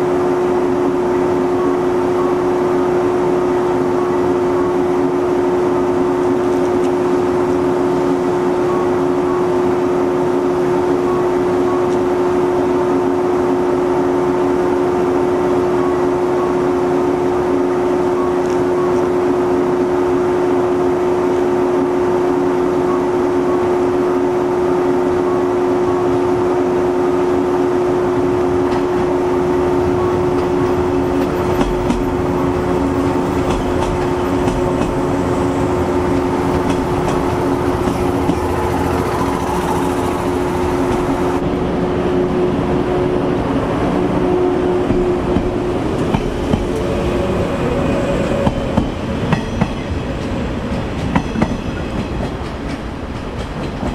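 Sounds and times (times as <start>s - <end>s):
train wheels rumbling on rails: 26.0s - 53.9s.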